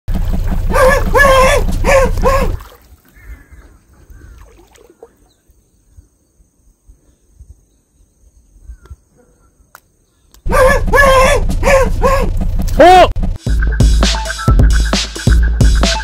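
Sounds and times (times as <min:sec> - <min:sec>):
faint bird chirps: 0:03.1 - 0:10.4
low thumps: 0:10.4 - 0:14.0.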